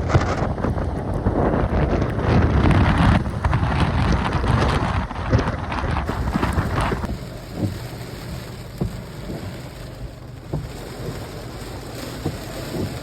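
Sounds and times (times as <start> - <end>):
steady rain hiss: 5.5 - 13.0.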